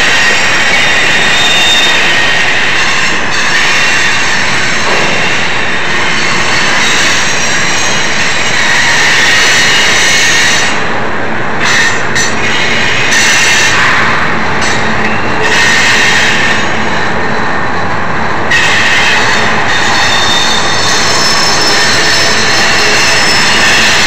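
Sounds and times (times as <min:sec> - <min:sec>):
steel wheels rumbling on rail: 0:00.0 - 0:24.0.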